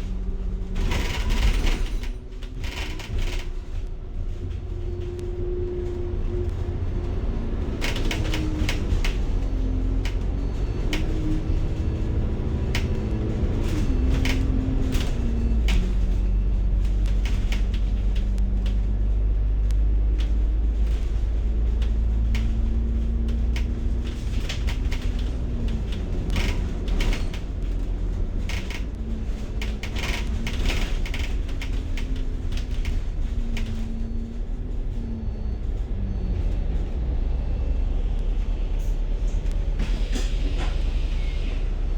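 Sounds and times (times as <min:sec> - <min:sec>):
bus engine rumble: 0:00.0 - 0:41.9
cabin rattles and clicks: 0:00.1 - 0:35.1.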